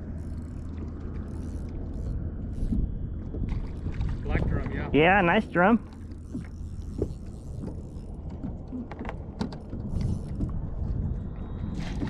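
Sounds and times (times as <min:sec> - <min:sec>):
low wind rumble: 0:00.0 - 0:12.0
gear clicks and taps: 0:05.8 - 0:10.7.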